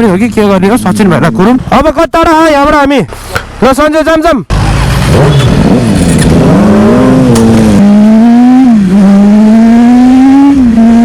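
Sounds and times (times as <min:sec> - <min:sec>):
motorcycle engine accelerating: 0:04.5 - 0:11.0.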